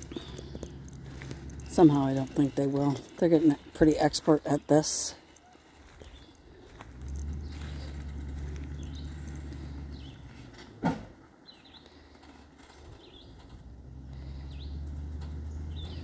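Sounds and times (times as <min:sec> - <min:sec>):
bird chirping: 0:00.0 - 0:10.4, 0:11.4 - 0:12.1, 0:12.9 - 0:13.5, 0:15.4 - 0:16.0
vehicle engine drone: 0:00.0 - 0:16.0.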